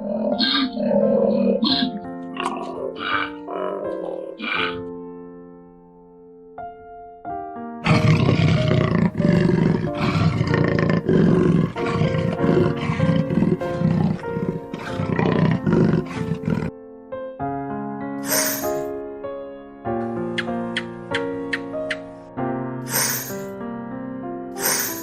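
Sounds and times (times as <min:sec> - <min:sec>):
big cat growling and roaring: 0:00.0 - 0:04.8, 0:07.8 - 0:16.7
soft background music: 0:00.0 - 0:25.0.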